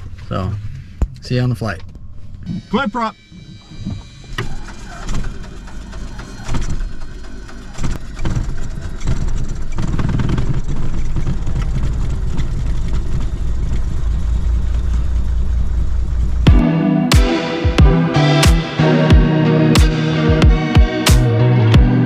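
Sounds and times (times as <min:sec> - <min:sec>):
piston engine starting: 0:03.2 - 0:13.8.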